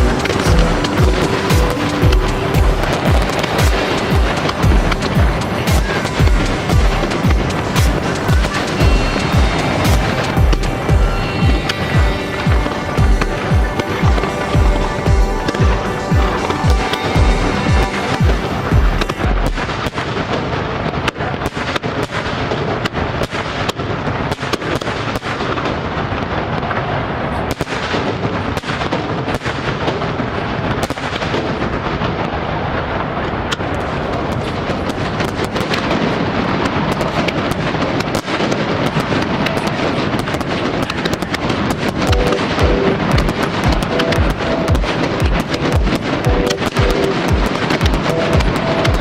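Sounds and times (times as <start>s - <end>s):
show music: 0.0s - 19.8s, 41.7s - 49.0s
fireworks bursting and crackling: 0.0s - 49.0s.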